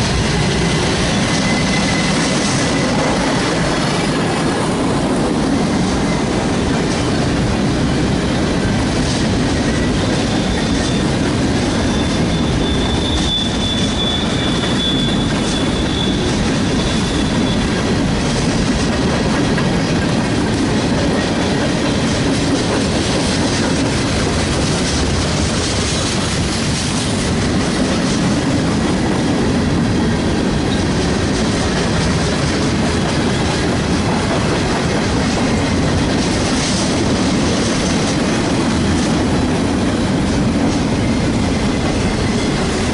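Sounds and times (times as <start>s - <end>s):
train wheels clacking over rails: 0.0s - 42.9s
high wheel squeal: 0.4s - 4.1s, 9.9s - 17.9s.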